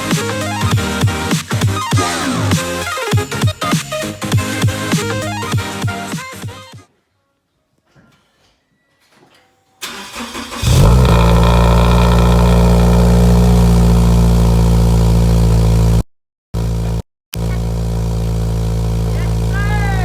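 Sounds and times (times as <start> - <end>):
car engine cranking and starting: 9.8 - 16.0, 16.6 - 20.0
car engine loud idle: 10.6 - 16.0, 16.6 - 20.0.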